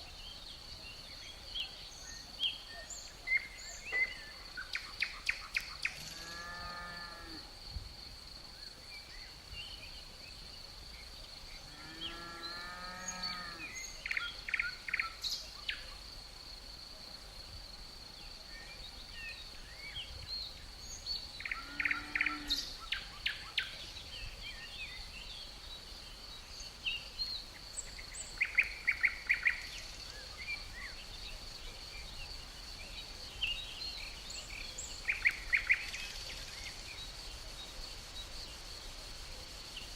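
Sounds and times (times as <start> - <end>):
crickets droning: 0.0 - 39.9
songbirds calling: 18.5 - 38.9.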